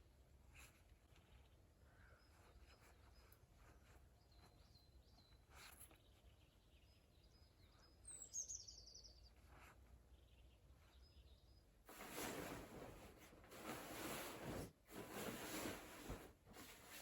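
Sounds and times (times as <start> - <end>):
bird chirping: 1.2 - 11.7.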